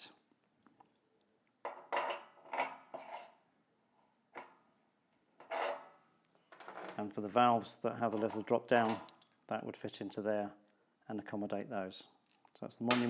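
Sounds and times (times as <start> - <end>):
metal tools knocking and clinking: 8.1 - 9.7.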